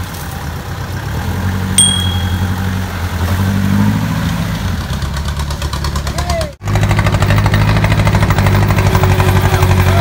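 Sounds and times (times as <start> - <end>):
sharp metallic ding: 1.8 - 2.8.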